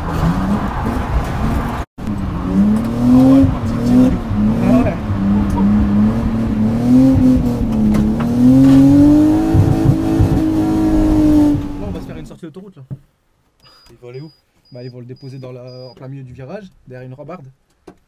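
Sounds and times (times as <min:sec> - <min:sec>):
car engine pulling hard: 0:00.0 - 0:12.3.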